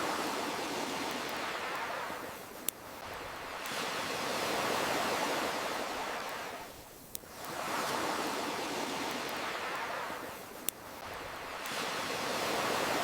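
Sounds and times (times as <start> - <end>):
ocean waves surging: 0.0 - 13.0
campfire pops: 10.5 - 11.0.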